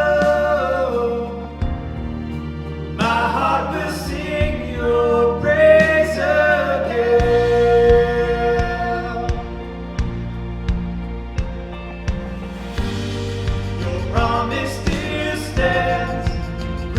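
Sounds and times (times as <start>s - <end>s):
voices singing held notes: 0.0s - 2.1s, 3.0s - 10.1s, 12.8s - 16.9s
low sustained instrumental accompaniment: 0.0s - 5.5s, 6.7s - 16.9s.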